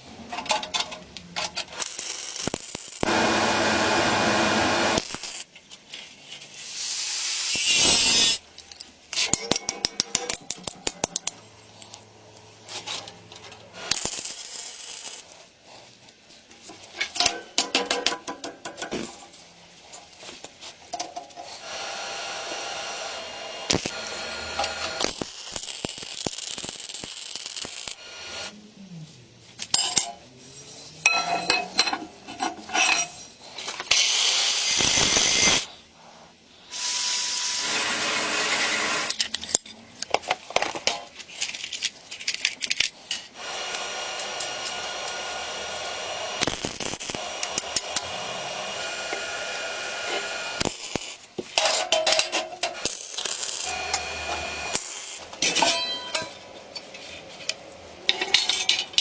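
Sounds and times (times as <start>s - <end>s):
metal parts and tools clinking: 0.3s - 3.0s, 7.5s - 15.4s, 29.6s - 34.1s, 39.0s - 43.3s, 50.6s - 59.0s
small machine running: 53.1s - 55.2s.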